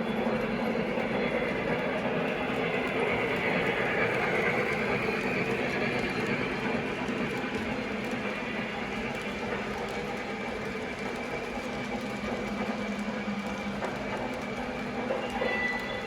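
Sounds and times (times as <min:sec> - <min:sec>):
model train locomotive hum: 0:00.0 - 0:16.0.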